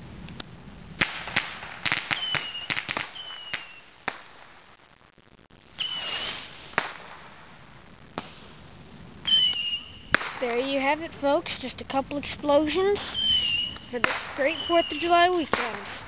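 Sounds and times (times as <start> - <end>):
fireworks bangs: 0.9 - 16.0
descending firework whistle: 1.4 - 4.0, 5.7 - 7.0, 9.2 - 10.4, 13.0 - 16.0.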